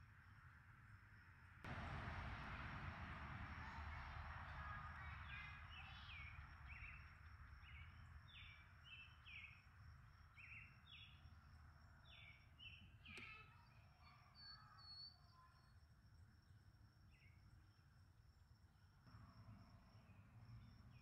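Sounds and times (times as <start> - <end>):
bird chirping: 4.4 - 15.8.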